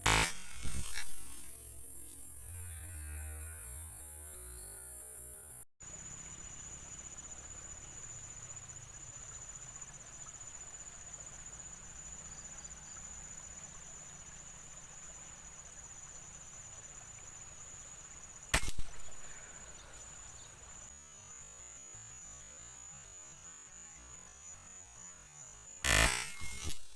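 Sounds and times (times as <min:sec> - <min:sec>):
insects buzzing: 0:00.0 - 0:26.9
air rifle shot: 0:18.6 - 0:19.3.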